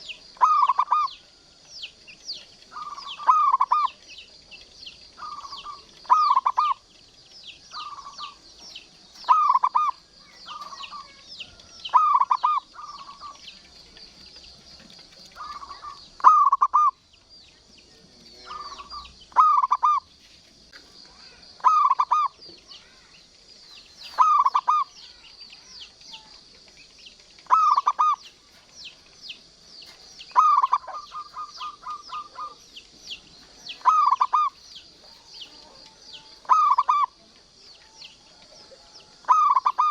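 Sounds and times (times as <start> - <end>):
dove cooing: 0.0 - 1.6, 2.6 - 17.0, 18.2 - 20.1, 21.2 - 23.1, 24.0 - 39.9
fine high chirping: 21.0 - 38.2.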